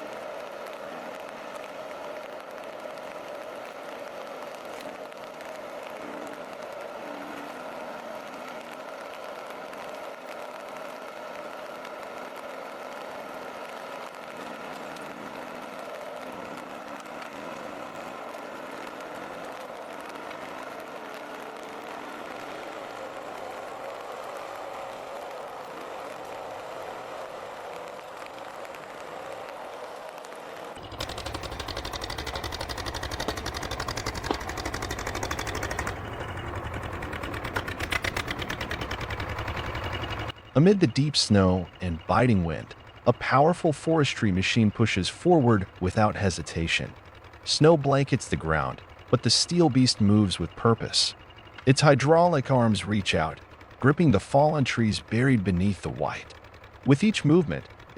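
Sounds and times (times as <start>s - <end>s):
heavy diesel engine running: 0.0s - 57.9s
diesel engine clattering: 30.8s - 57.9s.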